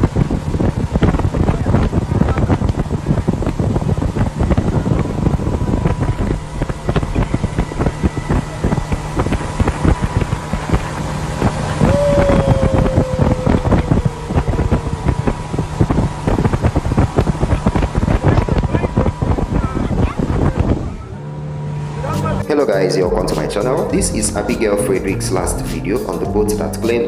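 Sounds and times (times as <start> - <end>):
wind buffeting microphone: 0.0 - 26.6
boat engine hum: 0.0 - 27.0
high tone sliding down: 11.5 - 15.9, 21.0 - 27.0.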